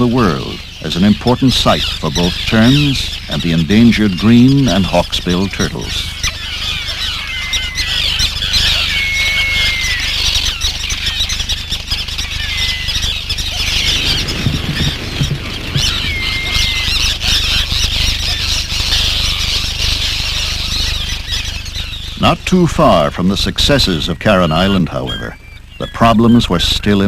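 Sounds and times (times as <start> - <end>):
terns calling in a colony: 0.0 - 27.0
falling whistled bird notes: 6.1 - 19.7.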